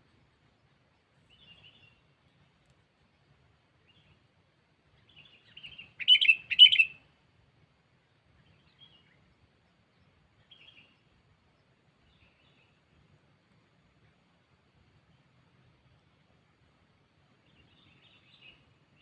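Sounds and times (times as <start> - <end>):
bird chirping: 1.2 - 2.1, 5.0 - 7.0, 8.4 - 12.8, 17.4 - 19.0.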